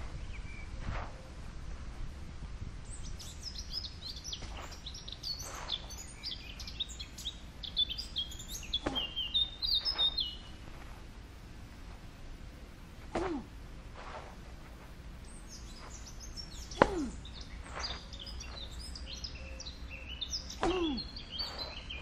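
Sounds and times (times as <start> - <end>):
songbird singing: 0.0 - 1.9, 2.8 - 22.0
low background rumble: 0.0 - 22.0.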